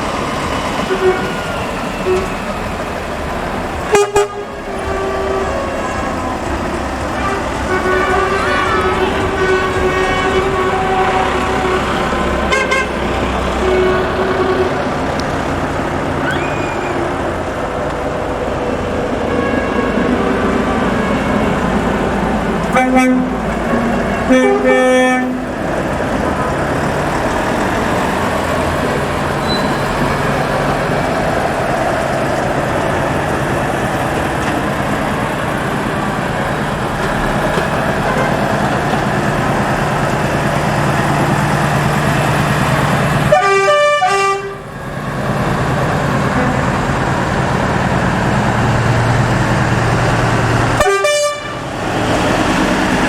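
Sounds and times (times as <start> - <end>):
trucks passing: 0.0 - 53.0
truck horn blasts: 0.8 - 2.4, 3.8 - 17.5, 19.1 - 25.8, 37.5 - 39.0, 43.2 - 44.8, 46.2 - 47.0, 50.7 - 52.4.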